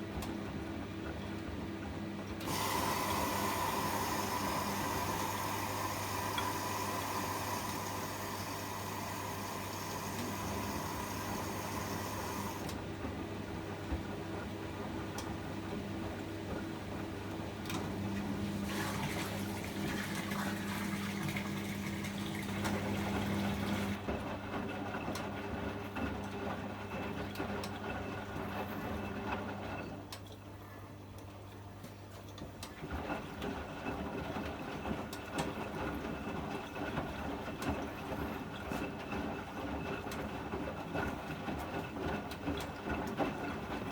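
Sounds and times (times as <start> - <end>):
washing machine running: 0.0 - 43.9.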